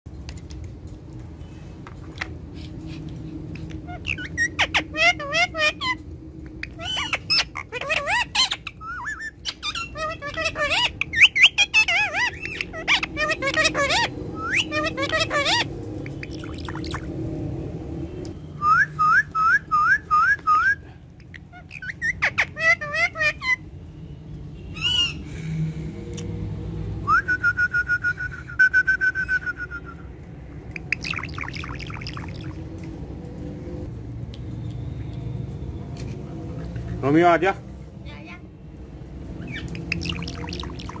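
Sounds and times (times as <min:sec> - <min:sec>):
parrot calling: 0:03.4 - 0:17.1, 0:18.6 - 0:23.7, 0:24.7 - 0:25.2, 0:30.6 - 0:32.6, 0:39.4 - 0:41.0
parakeet chattering: 0:03.5 - 0:17.1, 0:21.2 - 0:23.7, 0:30.5 - 0:32.6, 0:39.4 - 0:41.0.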